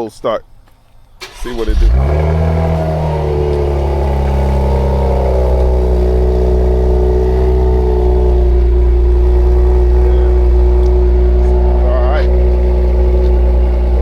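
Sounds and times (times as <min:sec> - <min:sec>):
car engine idling: 0:00.5 - 0:14.0.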